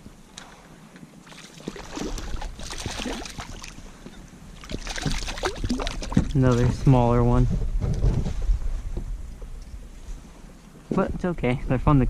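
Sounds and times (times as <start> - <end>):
fish splashing in water: 1.2 - 3.8, 4.6 - 6.3
wind rumbling on microphone: 1.8 - 12.0.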